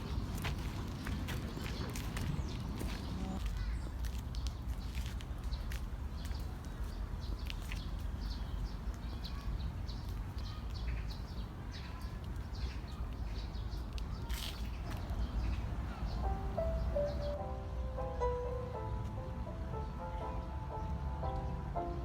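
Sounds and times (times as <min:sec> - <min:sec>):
small birds chirping: 0:00.0 - 0:17.5
music: 0:16.2 - 0:22.0.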